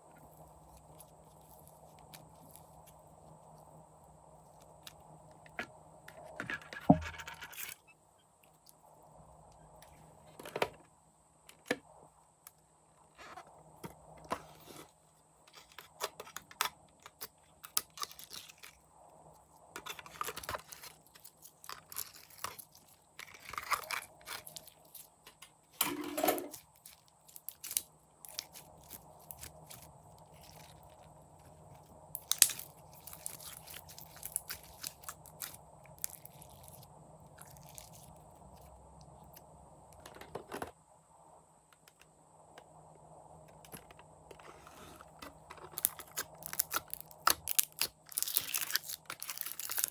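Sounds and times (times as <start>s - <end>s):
slime crunching and crackling: 19.8s - 25.0s, 26.5s - 38.2s, 45.7s - 49.9s.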